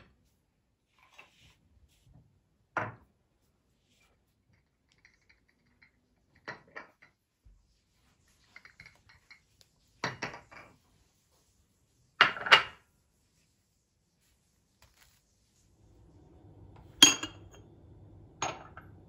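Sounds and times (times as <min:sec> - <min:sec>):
dishes and cutlery clinking: 0:08.4 - 0:10.8, 0:16.9 - 0:17.6.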